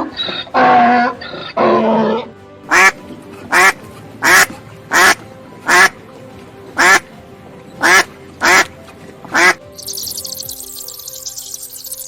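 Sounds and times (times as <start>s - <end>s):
soft background music: 0.0s - 12.0s
bird honking calls: 6.8s - 7.1s, 7.8s - 8.7s, 9.3s - 12.0s
high chirring: 9.7s - 12.0s.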